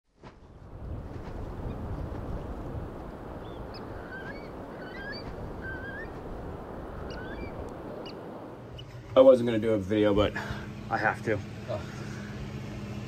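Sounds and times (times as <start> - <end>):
steady rushing noise: 0.2 - 12.8
short rising bird calls: 3.4 - 9.1.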